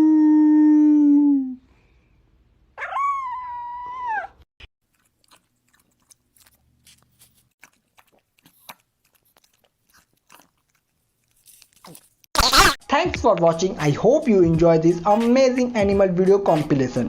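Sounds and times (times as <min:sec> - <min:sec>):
pet howling: 0:02.8 - 0:04.4.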